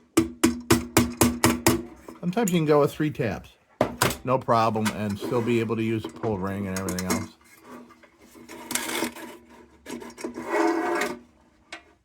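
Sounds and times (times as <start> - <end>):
tin lantern parts scraping: 4.6 - 11.3.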